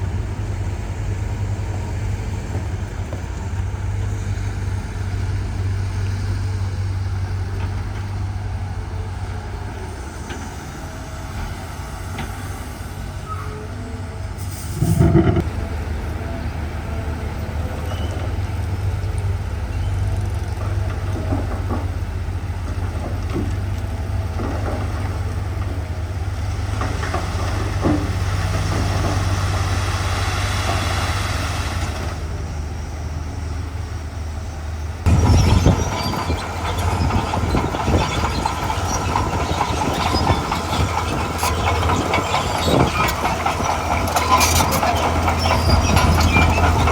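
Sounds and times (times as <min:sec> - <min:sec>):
diesel machinery engine drone: 0:00.0 - 0:46.9
loud metallic clank: 0:14.7 - 0:15.5.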